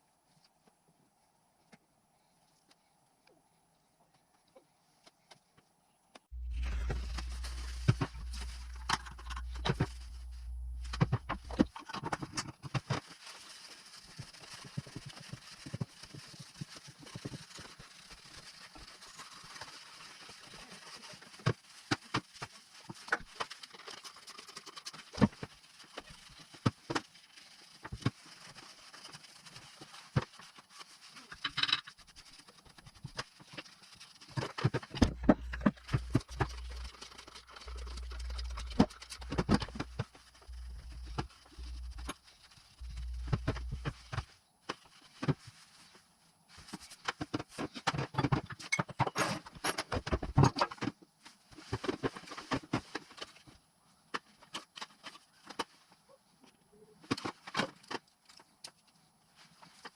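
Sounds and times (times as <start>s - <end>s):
steady hiss: 6.2s - 47.7s
low hum: 6.3s - 11.7s, 34.9s - 44.4s.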